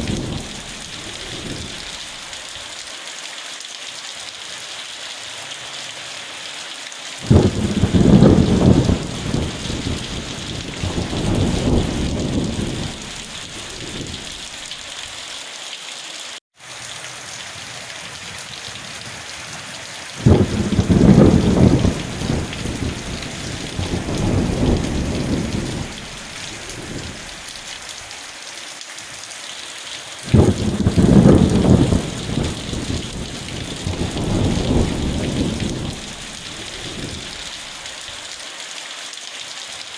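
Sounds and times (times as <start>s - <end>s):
thunder rumbling: 0.0s - 2.2s, 7.2s - 14.6s, 18.6s - 27.6s, 30.3s - 37.9s
steady rain: 0.0s - 39.9s.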